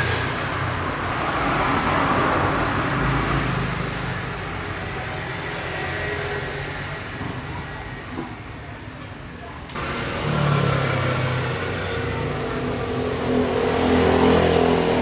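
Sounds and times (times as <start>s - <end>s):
vehicle passing: 9.8s - 15.0s.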